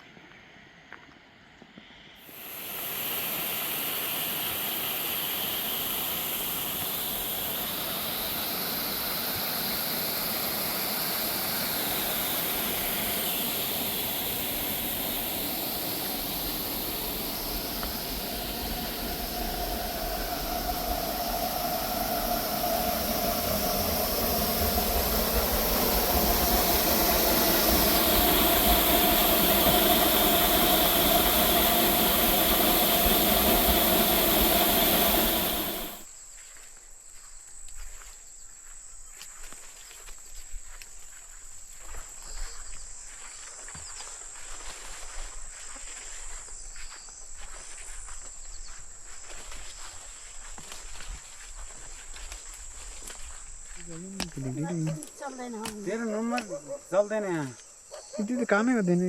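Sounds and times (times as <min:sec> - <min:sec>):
mechanical hum with hiss: 0:02.2 - 0:36.1
low rumble: 0:15.2 - 0:36.0.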